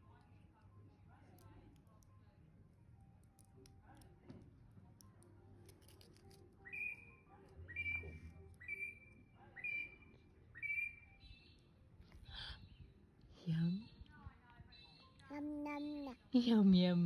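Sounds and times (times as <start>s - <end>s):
bird whistling: 6.6s - 11.6s.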